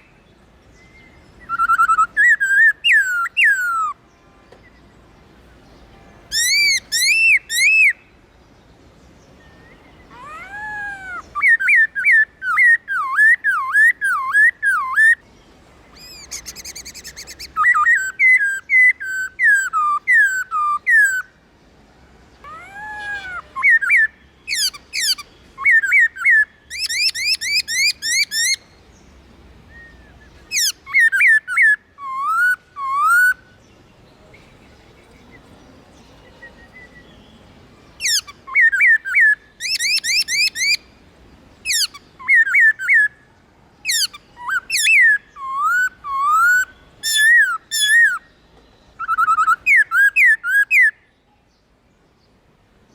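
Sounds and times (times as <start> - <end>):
bird singing whistled phrases: 0.8 - 4.0, 6.3 - 8.1, 9.5 - 15.2, 16.0 - 21.3, 22.4 - 28.6, 29.7 - 33.6, 36.2 - 37.4, 38.0 - 40.9, 41.7 - 43.2, 43.9 - 48.4, 49.0 - 51.1.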